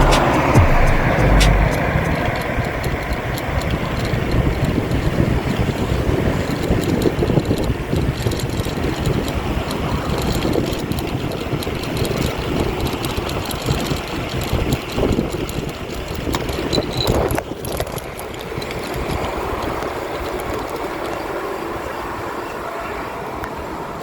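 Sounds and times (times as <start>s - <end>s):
tyre noise on road: 0.0s - 24.0s
wind rushing over microphone: 0.0s - 24.0s.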